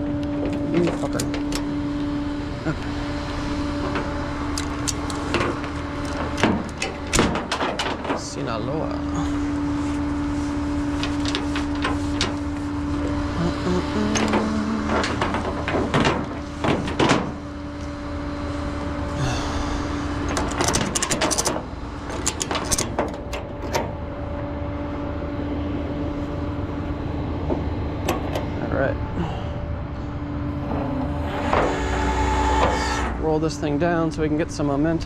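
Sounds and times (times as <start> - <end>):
truck engine humming: 0.0 - 34.9
metal clanks and knocks: 0.2 - 1.8, 3.8 - 8.4, 14.1 - 17.5, 20.2 - 24.1, 27.5 - 28.6.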